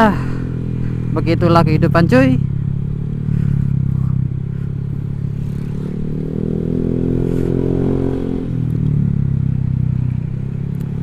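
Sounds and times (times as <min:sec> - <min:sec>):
low wind rumble: 0:00.0 - 0:11.0
scooter engine revving: 0:00.0 - 0:11.0.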